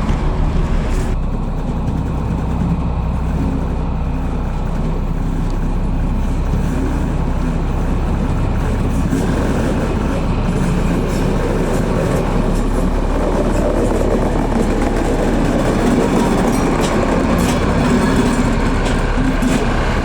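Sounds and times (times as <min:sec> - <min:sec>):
locomotive engine droning: 0:00.0 - 0:20.0.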